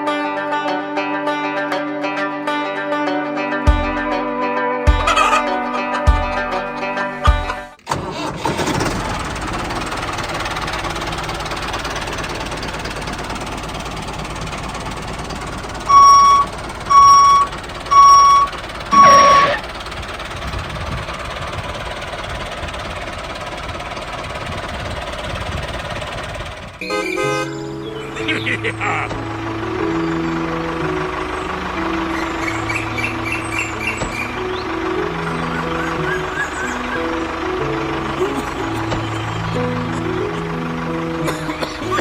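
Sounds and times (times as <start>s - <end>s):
loud electronic beeps: 15.9s - 19.6s.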